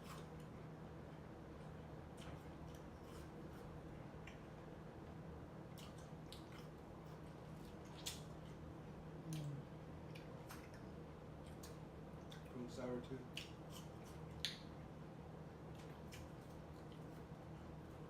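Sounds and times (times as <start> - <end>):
low steady hum: 0.0 - 18.0
wet mouth chewing fruit: 5.7 - 8.6, 9.2 - 12.6, 13.2 - 14.9, 15.7 - 17.3.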